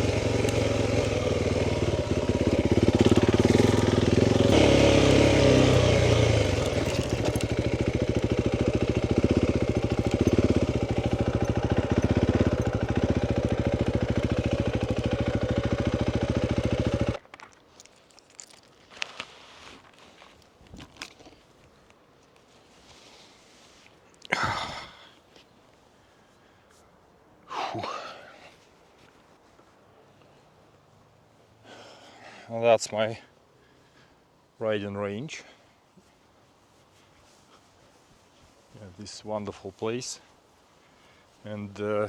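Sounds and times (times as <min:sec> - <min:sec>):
faint clicks and rustles: 0:00.0 - 0:16.6
motorcycle engine running: 0:00.0 - 0:17.2.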